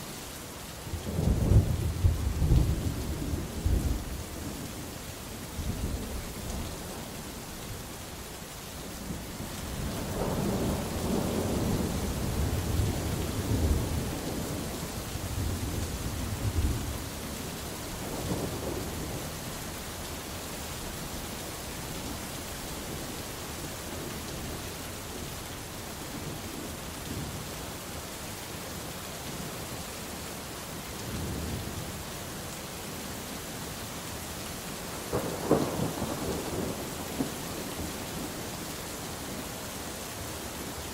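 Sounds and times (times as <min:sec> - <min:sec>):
heavy rain: 0:00.0 - 0:40.9
rolling thunder: 0:35.1 - 0:38.4.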